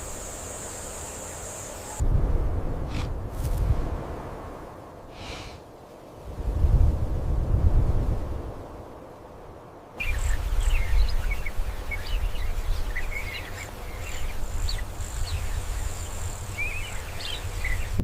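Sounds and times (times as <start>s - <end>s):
low wind rumble: 0.0s - 18.0s
birds chirping: 10.0s - 18.0s.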